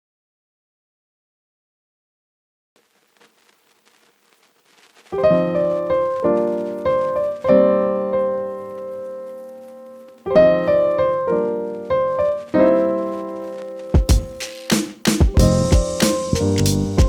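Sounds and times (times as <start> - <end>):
piano music: 5.2 - 17.0.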